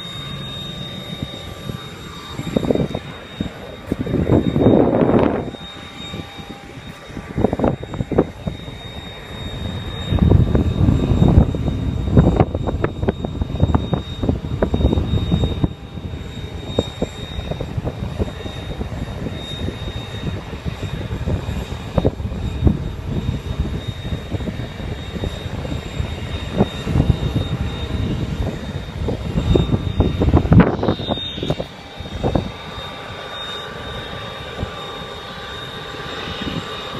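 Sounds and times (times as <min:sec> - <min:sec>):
propeller plane engine: 0:00.0 - 0:36.9.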